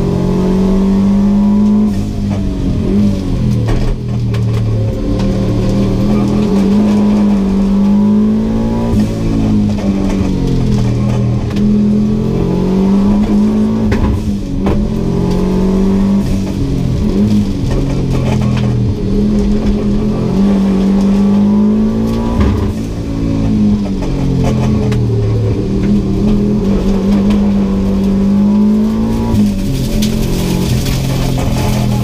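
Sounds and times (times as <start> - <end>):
car engine accelerating hard: 0.0 - 32.0.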